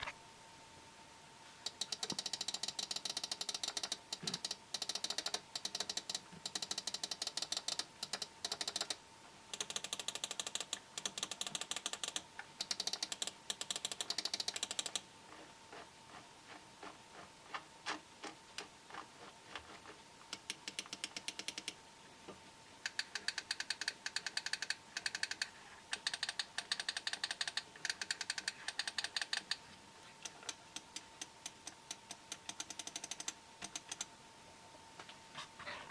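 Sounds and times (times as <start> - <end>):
faint steady whine: 0.0 - 35.9.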